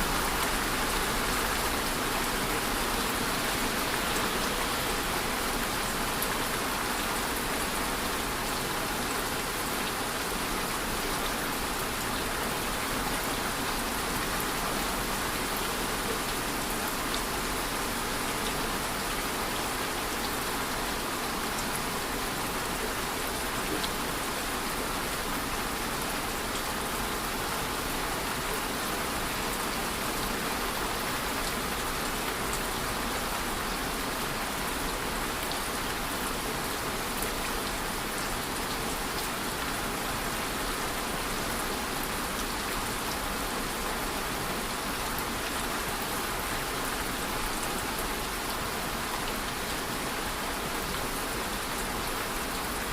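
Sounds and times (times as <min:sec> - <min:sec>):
steady rain hiss: 0:00.0 - 0:52.9.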